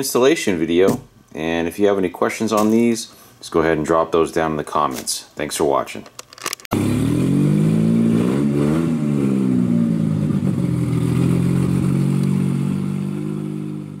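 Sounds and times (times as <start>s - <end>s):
car engine starting and revving: 6.7s - 14.0s
car engine idling: 9.6s - 14.0s.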